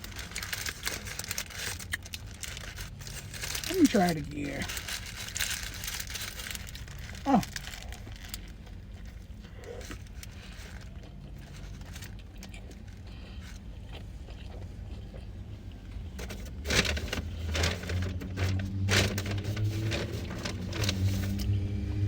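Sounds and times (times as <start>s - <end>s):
low engine hum: 0.0s - 22.0s
chewing: 5.3s - 16.1s.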